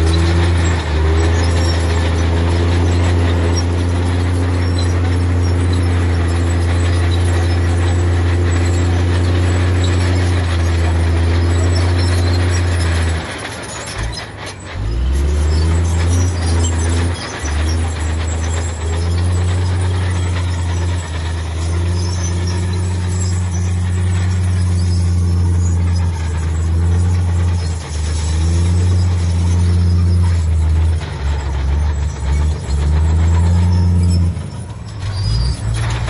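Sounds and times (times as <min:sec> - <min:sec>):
heavy diesel engine under load: 0:00.0 - 0:36.0.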